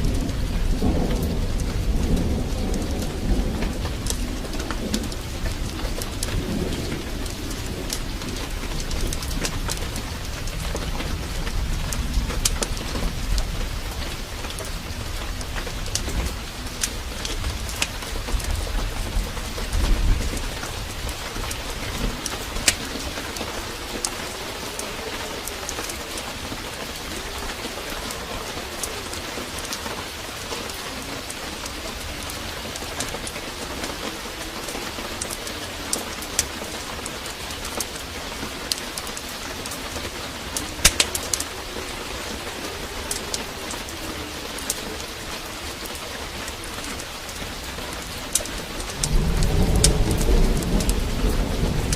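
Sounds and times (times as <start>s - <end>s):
heavy rain falling: 0.0s - 51.9s
low rumble of thunder: 0.0s - 51.9s
wood fire crackling: 0.0s - 51.9s
low cooing calls: 14.0s - 51.9s.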